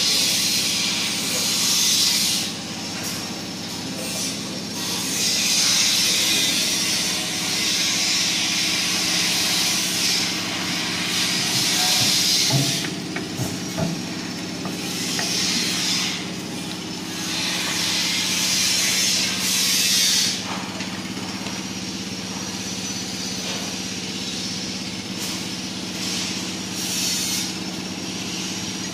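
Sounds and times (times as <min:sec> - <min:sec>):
diesel generator humming: 0:08.6 - 0:28.9.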